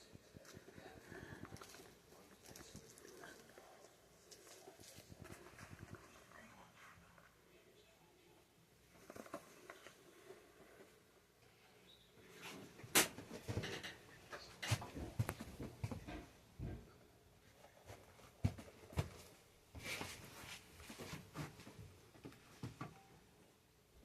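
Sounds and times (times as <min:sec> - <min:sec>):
rustling: 0:08.8 - 0:11.1.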